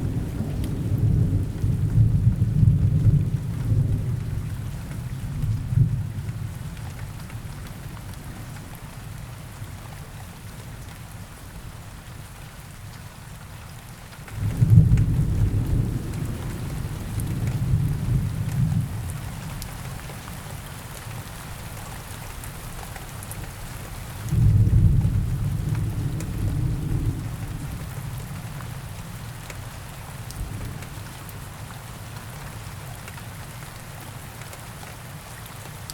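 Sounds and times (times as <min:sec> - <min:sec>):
low rumbles of thunder: 0:00.0 - 0:08.8, 0:14.3 - 0:20.2, 0:24.2 - 0:29.3, 0:30.2 - 0:31.4
steady rain falling: 0:00.0 - 0:35.9.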